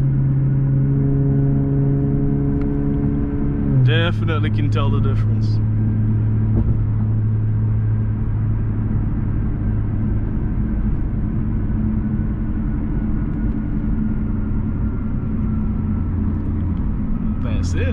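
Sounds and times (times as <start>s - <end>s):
car exhaust droning in cabin: 0.0s - 17.9s.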